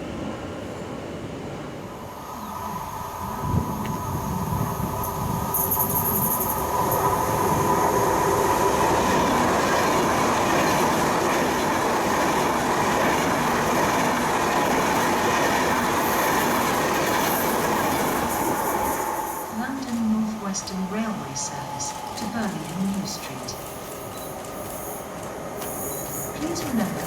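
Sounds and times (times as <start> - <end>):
passenger train running on track: 0.0 - 27.0.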